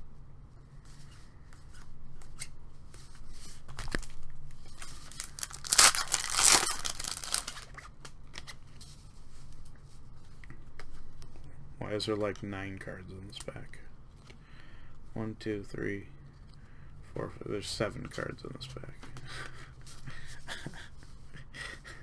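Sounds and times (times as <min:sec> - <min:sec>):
wrapper tearing and crinkling: 0:03.8 - 0:07.7.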